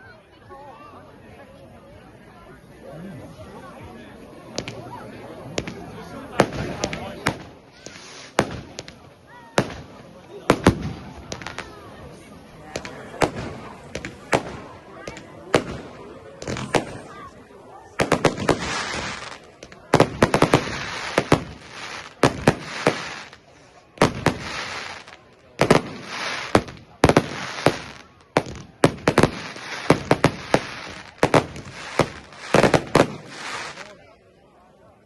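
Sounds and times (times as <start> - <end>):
fireworks banging and crackling: 4.5 - 34.1
fireworks hissing crackle: 5.6 - 11.9, 12.8 - 17.3, 17.9 - 34.0.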